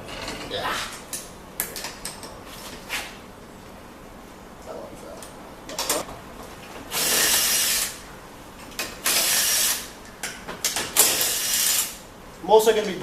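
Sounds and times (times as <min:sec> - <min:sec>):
power tool bursts: 0:06.9 - 0:08.0, 0:09.0 - 0:09.9, 0:11.0 - 0:12.0.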